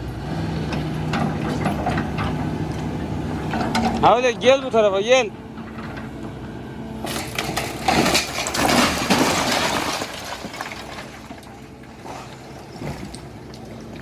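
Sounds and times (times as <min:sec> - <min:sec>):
excavator engine: 0:00.0 - 0:14.0
falling rubble knocks: 0:07.1 - 0:11.4
building debris crashing: 0:07.1 - 0:11.7.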